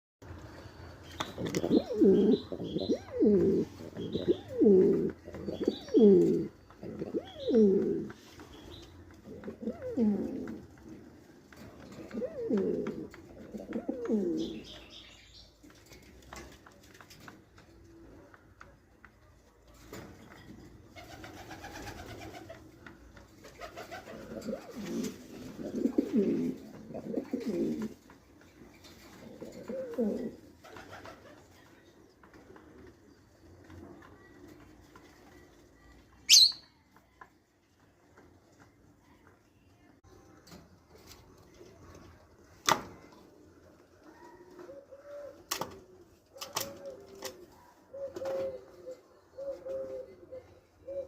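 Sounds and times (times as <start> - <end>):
faint low pigeon sounds: 0.2 - 51.0
pigeon cooing: 1.3 - 8.2, 9.2 - 10.8, 11.8 - 14.7, 23.6 - 28.0, 29.0 - 30.5, 44.0 - 51.0.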